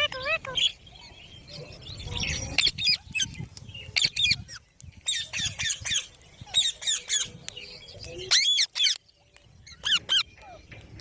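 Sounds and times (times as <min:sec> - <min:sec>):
parakeets giving harsh calls: 0:04.0 - 0:07.3, 0:09.7 - 0:10.3.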